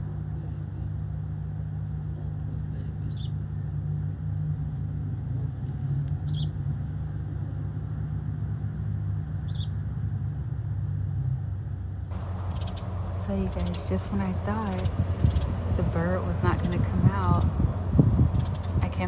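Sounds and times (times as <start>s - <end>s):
steady low rumble: 0.0s - 19.0s
small bird chirping: 6.2s - 6.6s, 9.4s - 9.8s, 12.2s - 15.9s, 18.3s - 18.8s.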